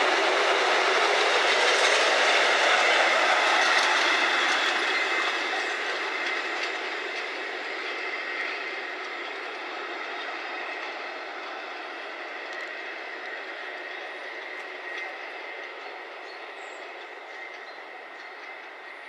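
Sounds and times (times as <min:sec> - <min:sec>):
train wheels on rails: 0:00.0 - 0:19.0.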